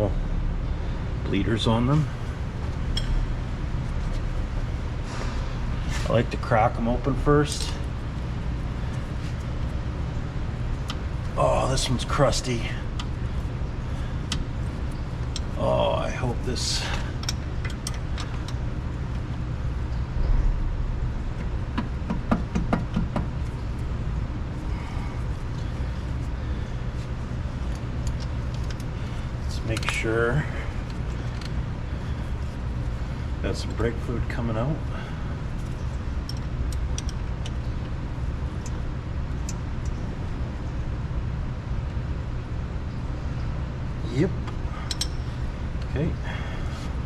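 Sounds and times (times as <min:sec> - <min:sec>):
low background hum: 0:00.0 - 0:47.0
low background rumble: 0:00.0 - 0:47.0
wrench clicking: 0:44.9 - 0:45.2.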